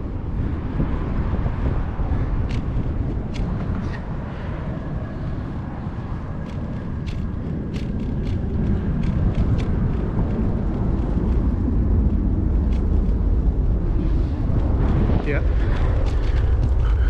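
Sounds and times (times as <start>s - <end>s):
wind buffeting microphone: 0.0s - 17.0s
light ticks: 6.4s - 10.4s.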